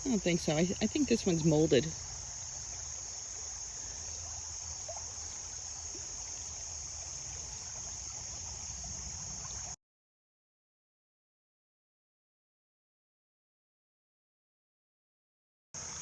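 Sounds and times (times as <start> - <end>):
insects chirping: 0.0 - 9.8, 15.8 - 16.0.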